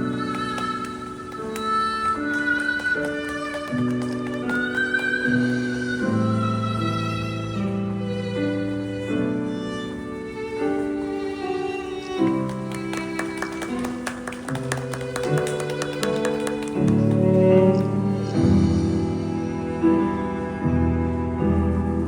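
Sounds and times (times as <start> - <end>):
quick tapping rhythm: 12.7 - 17.9
bowed strings playing slow melody: 14.8 - 22.0.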